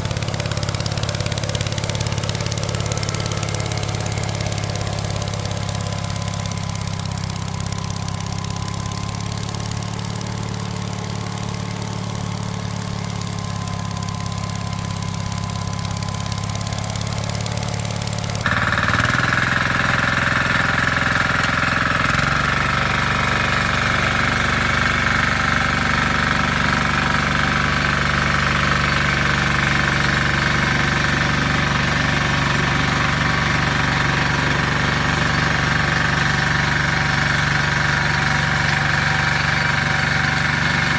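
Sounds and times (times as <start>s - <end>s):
walk-behind tractor engines: 0.0s - 40.9s
louder engine whining: 18.4s - 40.9s.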